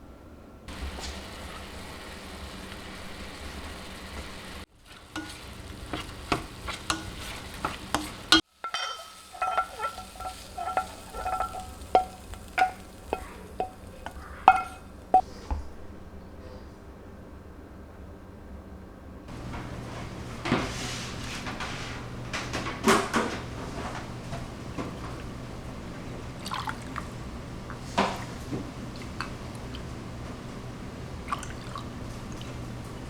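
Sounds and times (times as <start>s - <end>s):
food sizzling in a frying pan: 0.7s - 15.2s
utensil clinking against pan: 5.1s - 15.2s.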